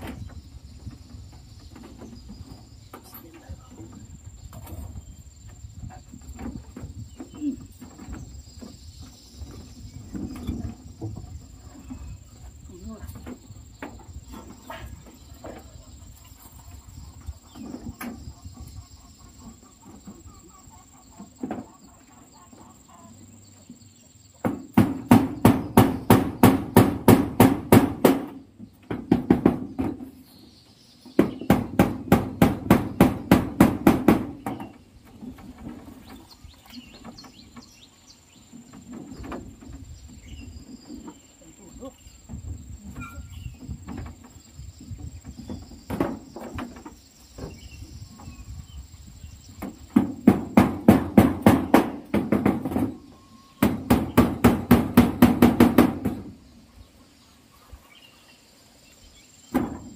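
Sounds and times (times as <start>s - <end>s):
scattered knocks: 24.4s - 30.1s, 31.1s - 34.8s, 49.6s - 53.0s, 53.6s - 56.3s.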